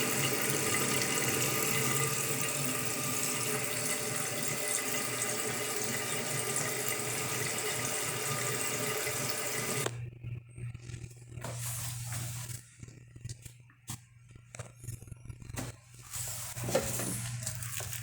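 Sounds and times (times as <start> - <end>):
water running: 0.0 - 9.9.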